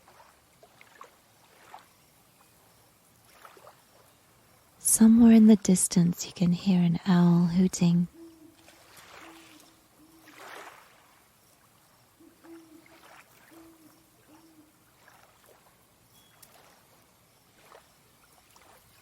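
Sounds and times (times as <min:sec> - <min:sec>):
water lapping: 0:00.0 - 0:19.0
owl hooting in the distance: 0:07.7 - 0:10.8, 0:12.1 - 0:15.2.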